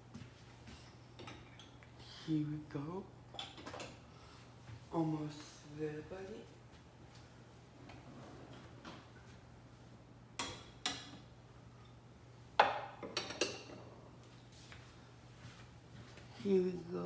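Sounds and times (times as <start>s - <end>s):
dishes clinking: 10.4s - 12.0s, 12.6s - 13.9s.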